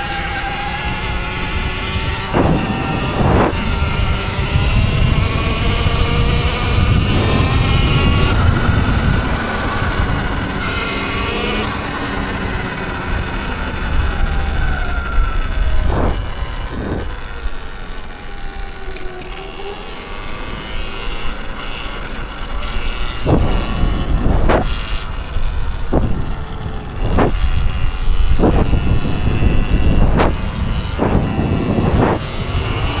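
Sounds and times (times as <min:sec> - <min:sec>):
electric dirt bike motor whining: 0:00.0 - 0:33.0
heavy low rumble: 0:02.0 - 0:10.6, 0:12.3 - 0:17.6, 0:23.0 - 0:33.0.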